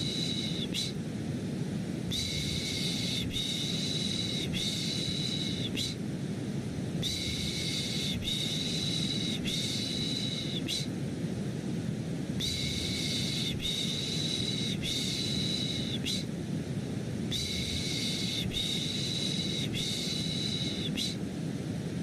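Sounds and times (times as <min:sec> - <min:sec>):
steady white noise: 0:00.0 - 0:22.0
person shushing: 0:02.1 - 0:06.0, 0:07.0 - 0:11.0.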